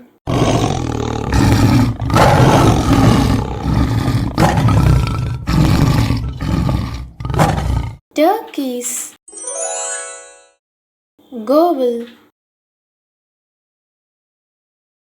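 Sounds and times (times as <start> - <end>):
tiger growling and roaring: 0.3 - 8.0.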